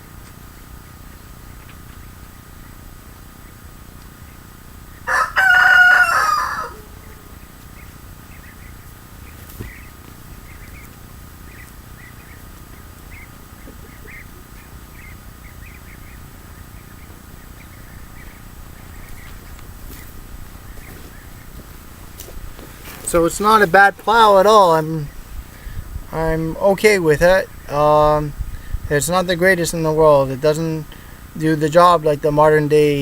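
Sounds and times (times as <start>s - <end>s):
rooster crowing: 4.9s - 7.5s.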